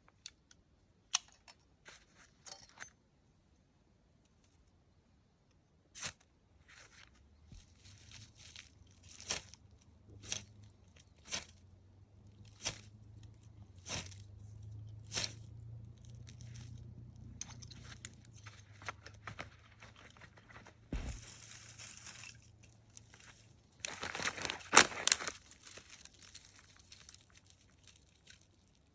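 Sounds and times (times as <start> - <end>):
low steady hum: 0.0 - 28.9
sharp crunches or snaps: 8.4 - 18.4.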